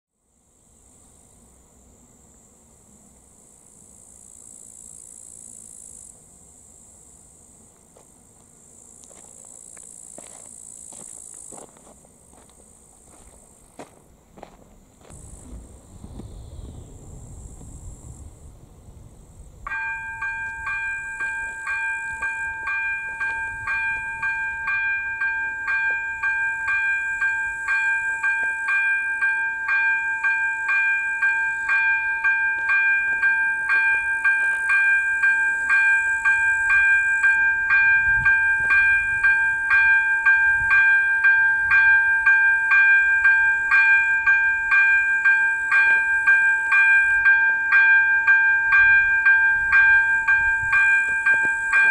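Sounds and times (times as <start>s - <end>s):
crickets chirping: 0.2s - 51.9s
level crossing bell ringing: 19.7s - 51.9s.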